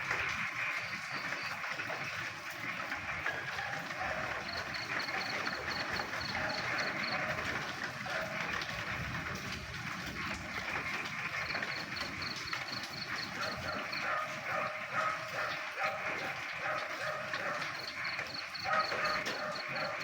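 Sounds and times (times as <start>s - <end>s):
frogs croaking: 0.0s - 20.0s
rain hiss: 0.0s - 20.0s.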